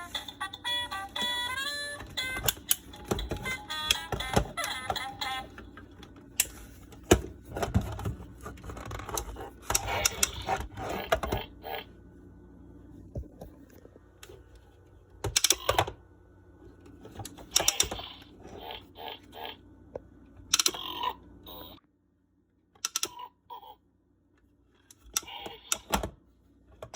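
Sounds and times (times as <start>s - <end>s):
plastic toy clicks and knocks: 15.3s - 15.9s, 17.4s - 18.1s, 20.5s - 20.9s, 22.8s - 23.2s.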